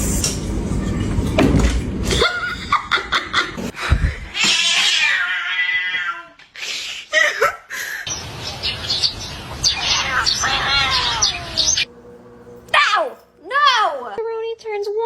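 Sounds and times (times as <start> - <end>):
cat calling: 9.6 - 11.9.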